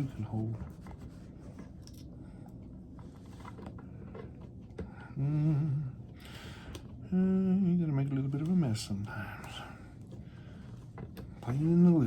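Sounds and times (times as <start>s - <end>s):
faint handling noises: 0.0s - 5.2s, 8.0s - 12.0s
man humming: 5.1s - 6.0s.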